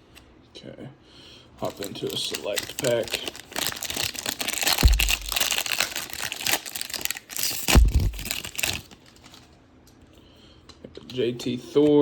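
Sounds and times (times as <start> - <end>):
plastic wrapper crinkling and tearing: 1.6 - 9.6
dull thumps: 4.6 - 5.7, 7.7 - 8.3.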